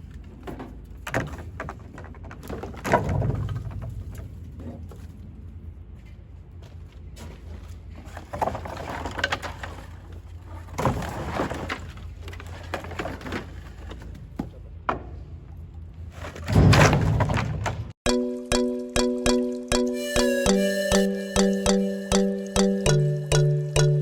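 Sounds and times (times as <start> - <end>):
debris crashing into trailer: 16.4 - 17.9.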